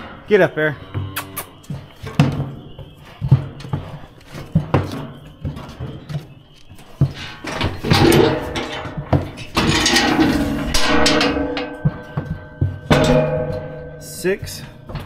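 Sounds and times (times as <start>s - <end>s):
calf hooves knocking on metal: 0.0s - 15.0s
metal scale frame rattling: 7.2s - 11.8s.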